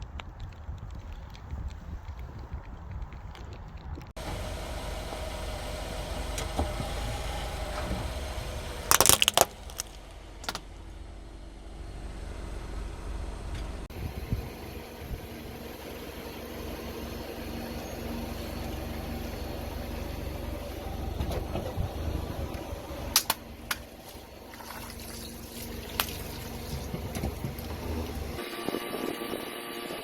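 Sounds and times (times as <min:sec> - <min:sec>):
objects cracking under tyre: 0:00.0 - 0:04.1, 0:08.9 - 0:10.7
car engine running low: 0:04.0 - 0:29.9.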